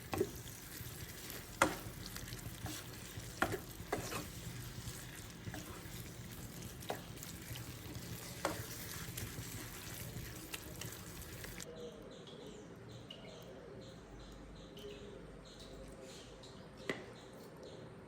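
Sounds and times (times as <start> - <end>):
fish sizzling in oil: 0.0 - 11.6.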